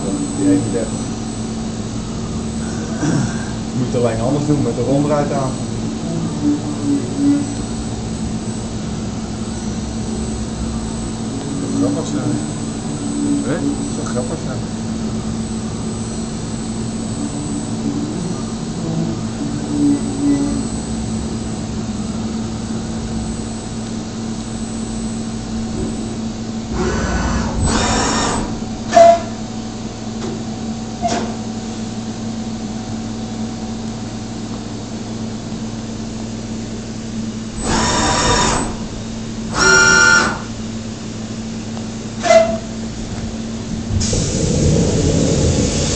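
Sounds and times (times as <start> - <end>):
milling machine humming: 0.0 - 45.9
loud buzzing bursts: 25.4 - 28.9, 37.5 - 40.6, 43.7 - 45.9.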